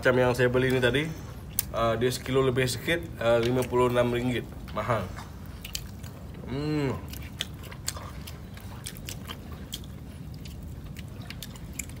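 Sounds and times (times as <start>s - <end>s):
man chewing: 0.6s - 2.4s, 3.1s - 12.0s
man humming: 6.4s - 7.1s.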